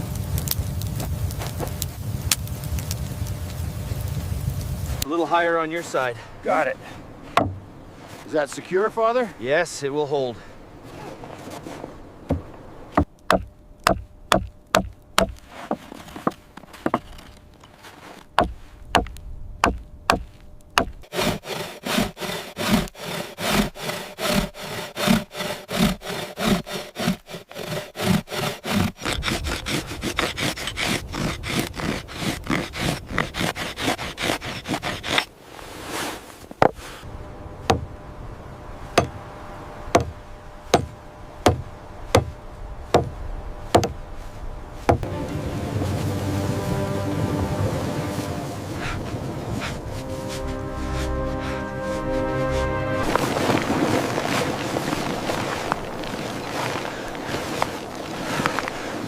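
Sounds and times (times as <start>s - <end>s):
wood knocking on wood: 7.3s - 7.6s, 12.3s - 17.2s, 43.7s - 44.0s
hand saw cutting wood: 20.8s - 35.3s.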